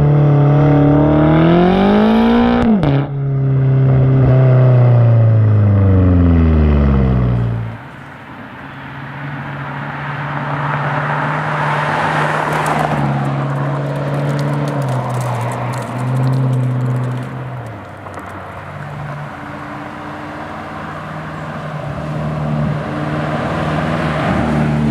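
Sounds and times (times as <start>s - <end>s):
car engine revs dropping: 0.0s - 7.8s.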